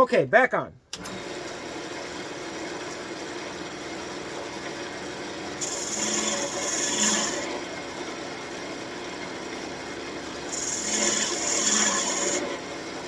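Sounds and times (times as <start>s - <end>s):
wood lathe running: 1.0s - 13.0s
tool scraping turning wood: 5.6s - 7.9s, 10.2s - 12.7s.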